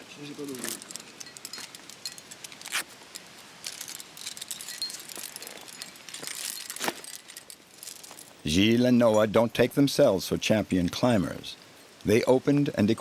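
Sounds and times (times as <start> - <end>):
metal carabiners clinking: 0.4 - 8.4.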